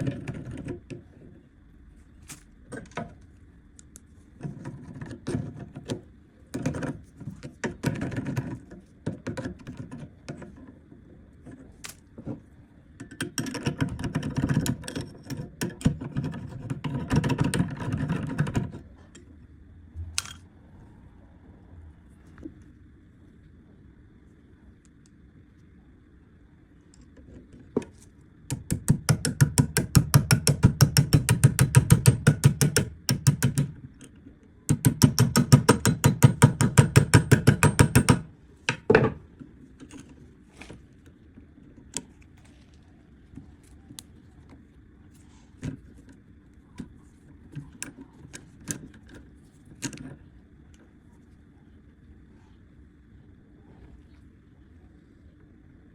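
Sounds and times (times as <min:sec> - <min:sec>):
rapid mechanical clicking of tool: 0:28.5 - 0:34.1.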